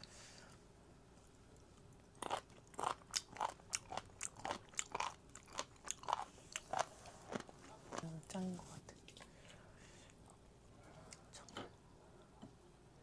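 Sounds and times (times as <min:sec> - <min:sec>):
person chewing crunchy food: 0:02.1 - 0:08.1.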